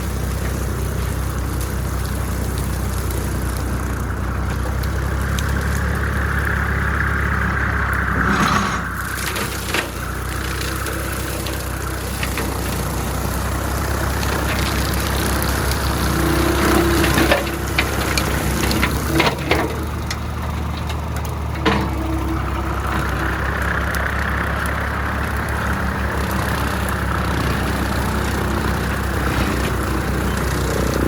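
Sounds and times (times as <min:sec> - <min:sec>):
tractor engine running: 0:00.0 - 0:31.0
high whine: 0:07.1 - 0:09.5.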